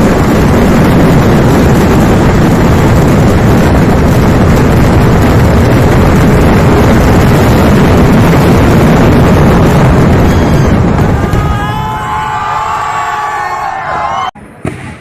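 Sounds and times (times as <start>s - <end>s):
fireworks explosions: 0.0s - 13.4s, 14.4s - 15.0s
crowd shouting and cheering: 10.2s - 14.5s.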